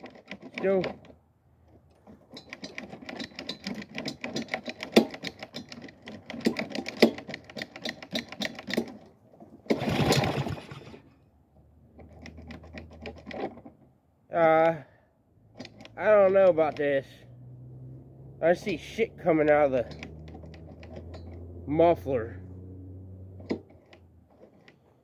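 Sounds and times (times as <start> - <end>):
lawn mower engine sputtering: 1.8 - 11.2, 18.6 - 21.8
engine backfiring: 9.7 - 11.2, 17.1 - 24.0.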